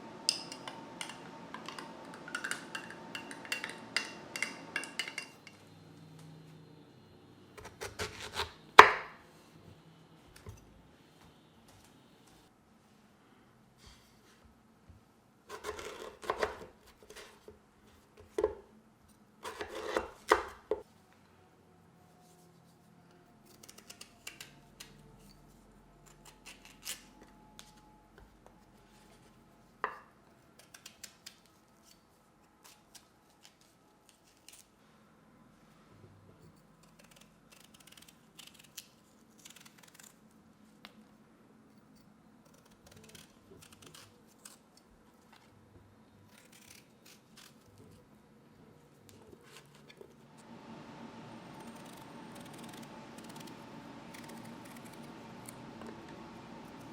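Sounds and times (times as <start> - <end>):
knife slicing and scraping pears: 7.6 - 9.2, 15.5 - 17.6, 19.4 - 20.8, 42.5 - 45.5, 46.3 - 48.0, 51.4 - 56.9.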